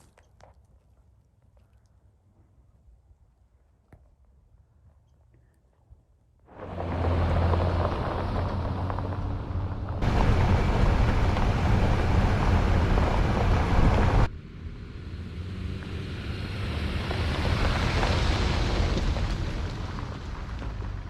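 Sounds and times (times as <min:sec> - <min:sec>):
road noise: 0:06.5 - 0:21.0
vehicle engine hum: 0:06.5 - 0:21.0.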